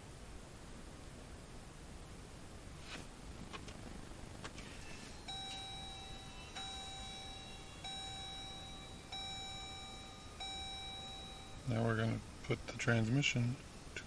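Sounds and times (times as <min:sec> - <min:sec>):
dashboard warning chime: 0:04.8 - 0:12.2.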